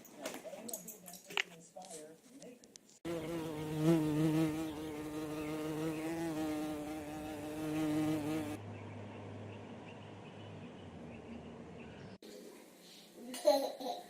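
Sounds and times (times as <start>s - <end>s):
wavering buzz: 3.1s - 8.6s.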